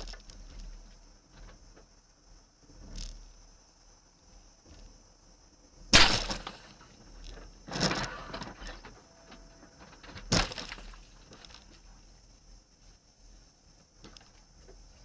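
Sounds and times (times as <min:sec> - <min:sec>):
glass breaking: 0:06.0 - 0:06.8, 0:10.3 - 0:11.0
car crash impacts: 0:06.0 - 0:06.9, 0:10.1 - 0:11.2.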